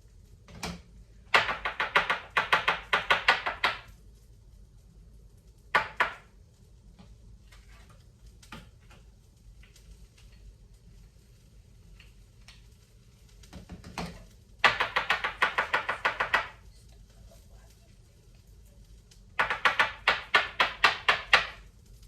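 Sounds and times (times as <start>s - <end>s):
rapid hard tapping: 1.3s - 3.9s, 5.7s - 6.3s, 14.6s - 16.7s, 19.4s - 21.7s.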